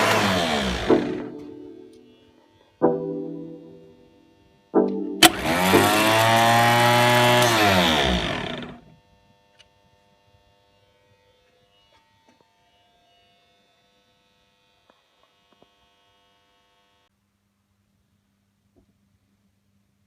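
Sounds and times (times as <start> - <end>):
truck starter motor whining: 5.2 - 8.8.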